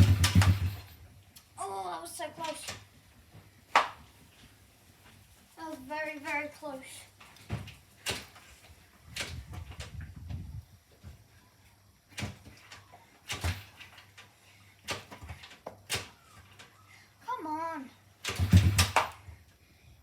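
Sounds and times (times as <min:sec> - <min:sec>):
engine turning over: 0:00.0 - 0:01.0, 0:18.2 - 0:19.3
motorbike kick-start clunks: 0:00.0 - 0:01.0, 0:18.2 - 0:19.3.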